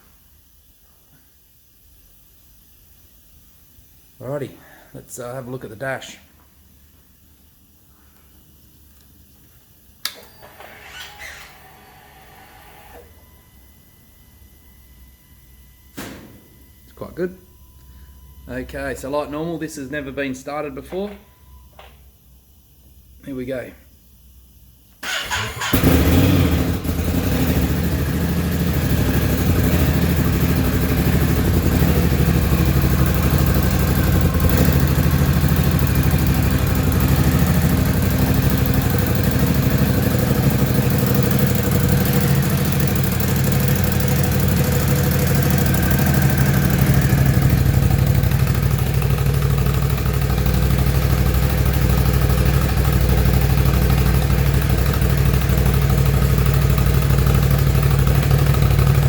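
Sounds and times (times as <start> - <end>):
motorcycle engine starting and idling: 10.0 - 13.3, 25.0 - 59.0.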